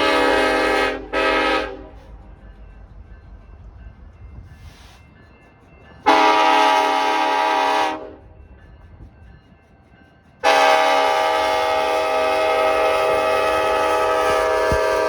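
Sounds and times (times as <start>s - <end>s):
locomotive air horn blasts: 0.0s - 2.0s, 6.1s - 8.2s, 10.4s - 15.0s.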